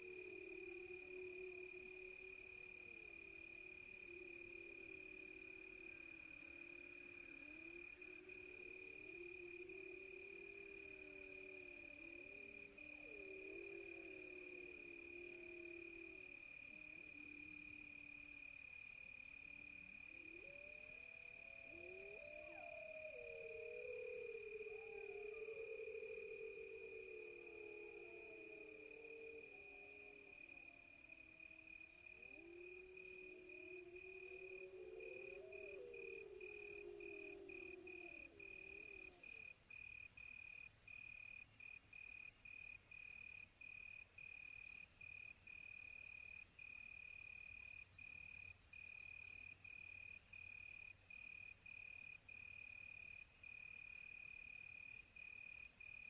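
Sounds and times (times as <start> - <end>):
distant wolves howling: 0.0 - 17.8, 19.9 - 39.5
crickets trilling: 0.0 - 56.0.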